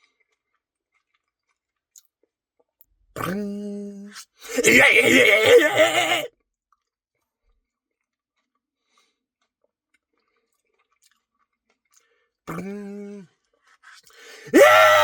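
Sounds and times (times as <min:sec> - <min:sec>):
wet chewing and mouth clicks: 0:00.1 - 0:02.4, 0:08.4 - 0:12.8
person humming a groan: 0:04.5 - 0:06.3, 0:12.6 - 0:13.2, 0:14.4 - 0:15.0.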